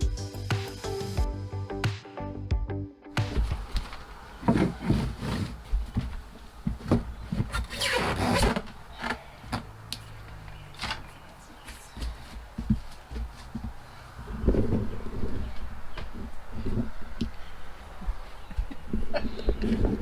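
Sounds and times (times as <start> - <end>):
clunks and knocks: 3.2 - 11.2
scraping rattle: 3.4 - 11.3.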